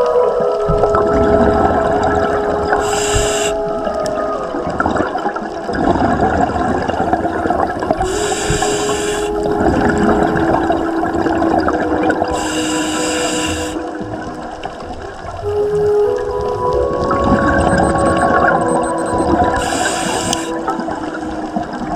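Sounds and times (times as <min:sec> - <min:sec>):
continuous bubbling: 0:00.0 - 0:21.9
diver breathing through regulator: 0:02.8 - 0:03.6, 0:08.1 - 0:09.4, 0:12.4 - 0:13.8
low held tones: 0:15.5 - 0:20.9.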